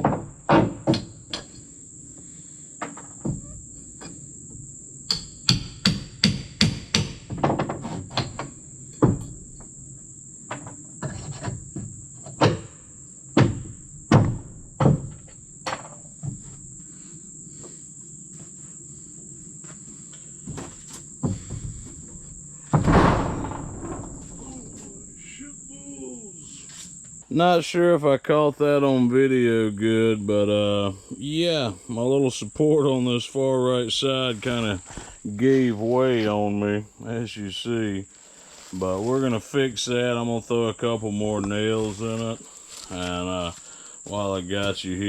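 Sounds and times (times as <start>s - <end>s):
insects trilling: 0.0s - 45.0s
hammer on wooden boards: 5.1s - 8.4s.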